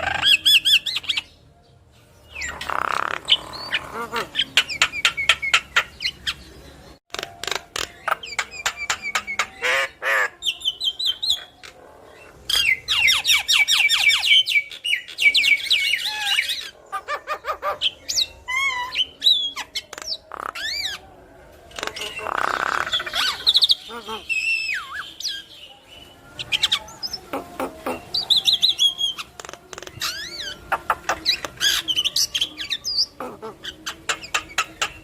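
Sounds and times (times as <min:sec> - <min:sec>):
myna singing: 0:22.0 - 0:35.0.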